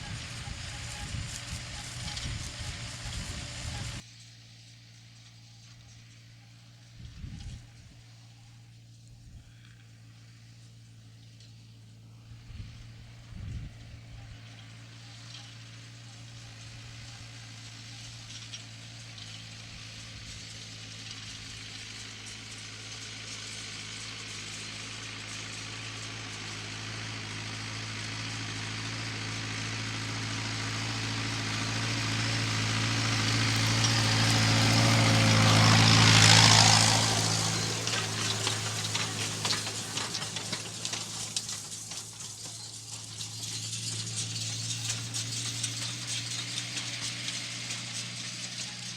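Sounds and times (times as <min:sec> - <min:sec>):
tractor diesel engine passing: 0:00.0 - 0:48.9
rattling clatter: 0:30.9 - 0:48.9.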